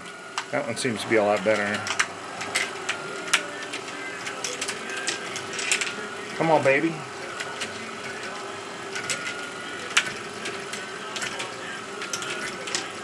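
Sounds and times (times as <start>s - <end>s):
motor and gear whir: 0.0s - 13.0s.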